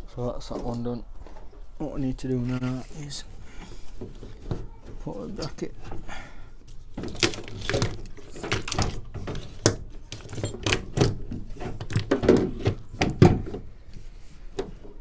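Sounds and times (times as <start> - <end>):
knocks and clunks of tools: 3.6 - 15.0.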